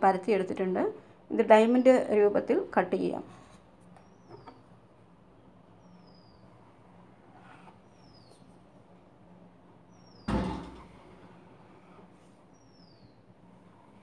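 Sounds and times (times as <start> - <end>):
loud thump: 10.3 - 11.0.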